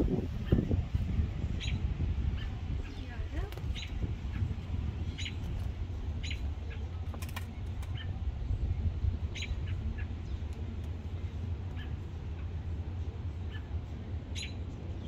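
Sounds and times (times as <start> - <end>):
steady low rumble: 0.0 - 15.0
high bird chirps: 1.5 - 3.1.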